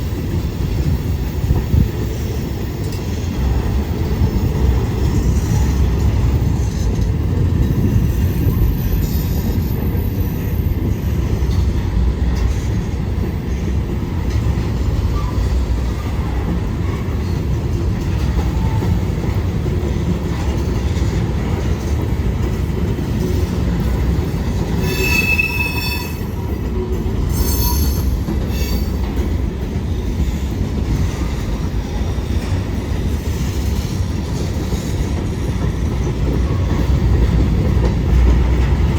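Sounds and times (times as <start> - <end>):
train wheels rumbling on rail: 0.0 - 38.9
high-pitched wheel squeals: 24.8 - 26.5, 27.3 - 29.0.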